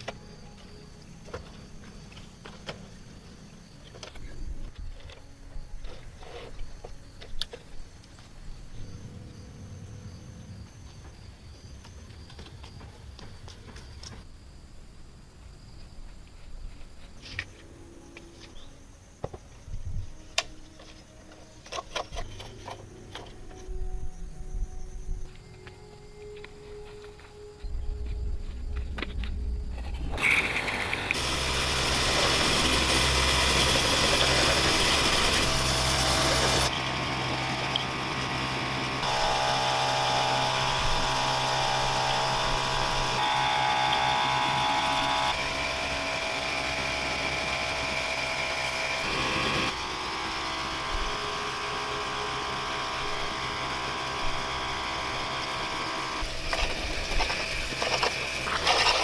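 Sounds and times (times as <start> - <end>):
small motor running: 30.1 - 59.0.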